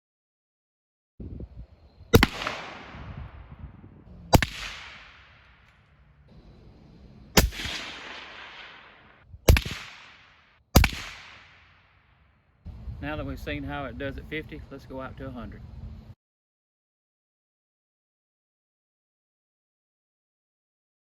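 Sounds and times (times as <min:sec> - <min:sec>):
rifle shots with echo: 0:02.1 - 0:06.0, 0:07.3 - 0:12.2
bullet impact: 0:02.2 - 0:03.6, 0:04.3 - 0:05.9, 0:07.4 - 0:12.2.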